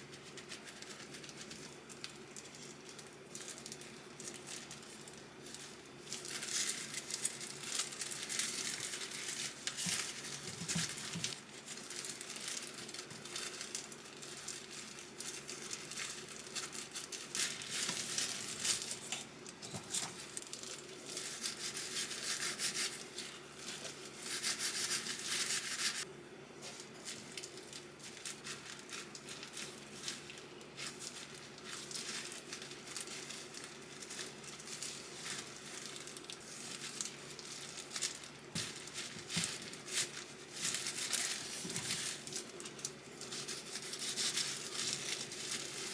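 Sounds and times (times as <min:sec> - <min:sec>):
crinkling and rustling: 0:00.0 - 0:45.9
faint steady hum: 0:00.0 - 0:45.9.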